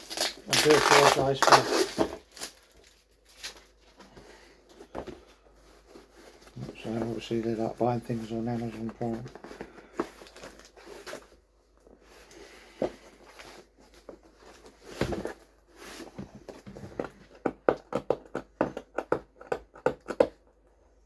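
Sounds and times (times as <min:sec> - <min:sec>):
cardboard boxes rustling: 0:00.0 - 0:17.7.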